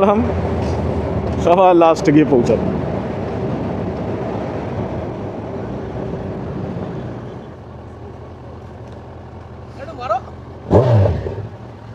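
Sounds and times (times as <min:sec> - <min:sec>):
wind and road rush: 0:00.0 - 0:11.9
motorcycle running: 0:07.8 - 0:11.9.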